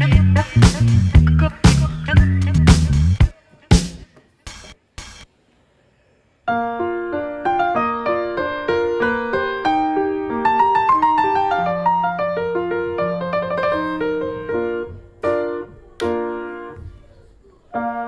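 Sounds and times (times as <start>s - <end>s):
piano music: 6.5s - 16.8s, 17.8s - 18.0s.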